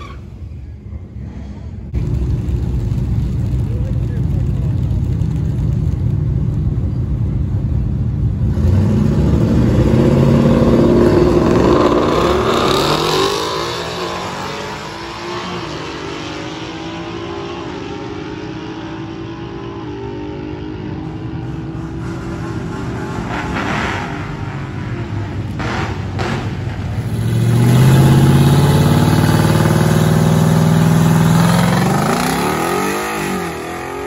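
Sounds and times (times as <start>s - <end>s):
car engine revving hard: 27.2s - 34.0s.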